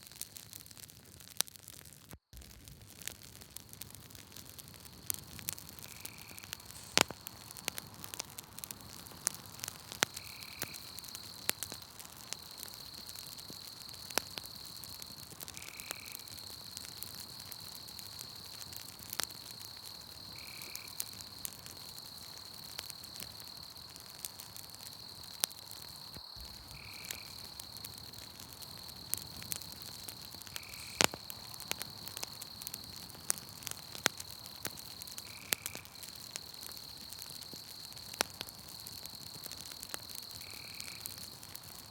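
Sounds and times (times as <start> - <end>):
campfire crackling and popping: 0.0 - 41.9
high-pitched insect trill: 24.9 - 32.9.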